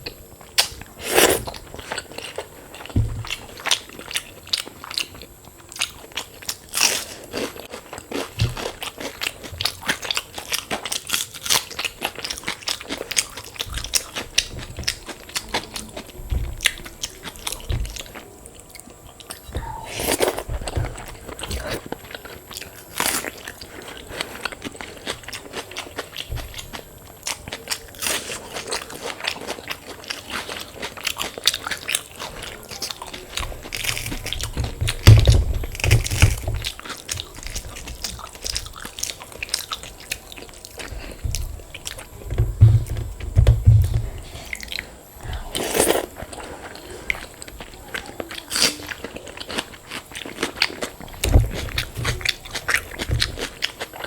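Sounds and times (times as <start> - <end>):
crunchy bites and chewing: 19.2 - 43.2
loud low thumps: 41.2 - 44.3.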